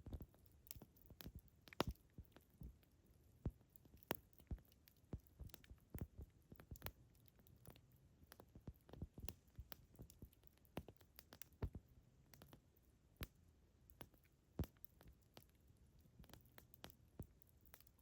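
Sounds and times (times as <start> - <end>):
faint low background: 0.0 - 18.0
campfire crackling and popping: 0.1 - 2.0, 5.4 - 7.0.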